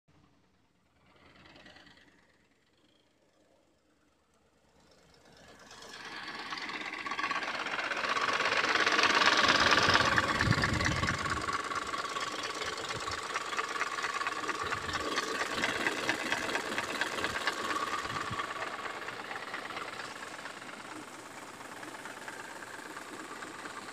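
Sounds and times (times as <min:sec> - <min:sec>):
car engine knocking: 0:04.9 - 0:23.9
fine rapid ticking: 0:05.3 - 0:23.9.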